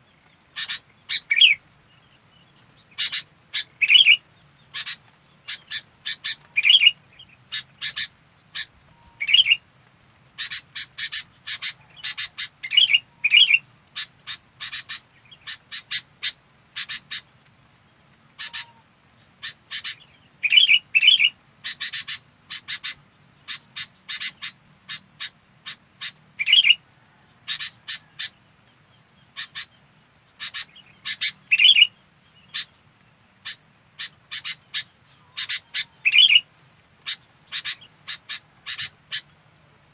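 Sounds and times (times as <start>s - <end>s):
bird chirping and whistling: 31.2s - 31.9s.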